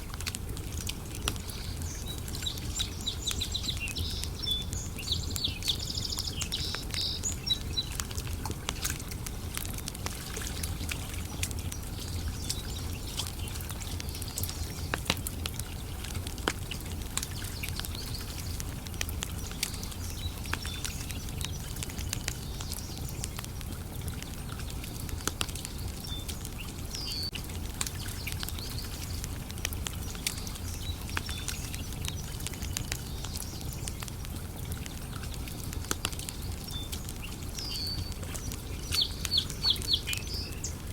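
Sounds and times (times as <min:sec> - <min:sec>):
campfire wood crackling and popping: 0:00.0 - 0:40.9
birds chirping: 0:01.3 - 0:08.2, 0:17.0 - 0:40.9.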